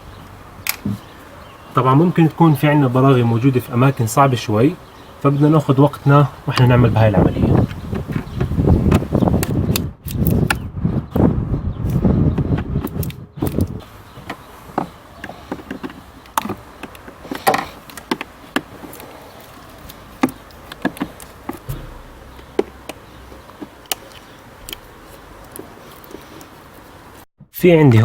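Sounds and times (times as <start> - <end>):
handling noise: 5.9 - 9.7, 12.3 - 27.2.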